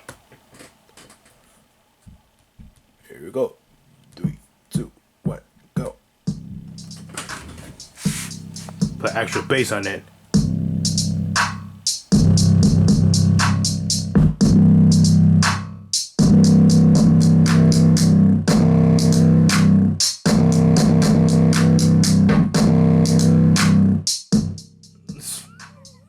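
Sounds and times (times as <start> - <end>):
electronic music with heavy bass: 6.3 - 26.0.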